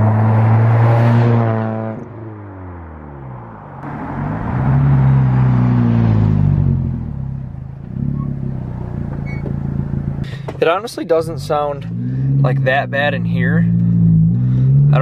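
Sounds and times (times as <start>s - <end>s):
straight-piped engine revving: 11.4s - 15.0s.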